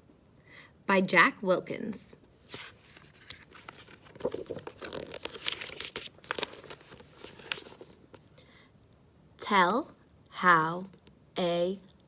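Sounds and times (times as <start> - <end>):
paper pages rustling and turning: 2.4 - 8.3.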